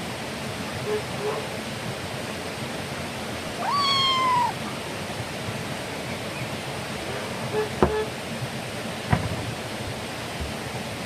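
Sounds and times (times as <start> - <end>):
steady rushing hiss: 0.0 - 11.0
drawn-out animal call: 6.0 - 8.2.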